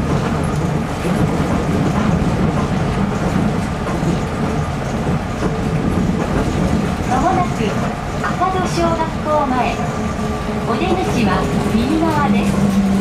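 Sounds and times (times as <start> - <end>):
train running rumble: 0.0 - 13.0.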